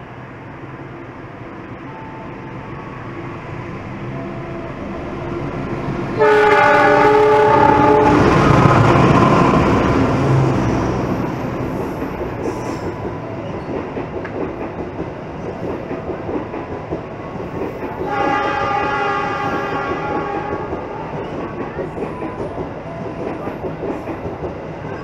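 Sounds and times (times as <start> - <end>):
locomotive horn: 6.2 - 8.6, 18.0 - 21.2
wheels clattering on rails: 19.5 - 25.0.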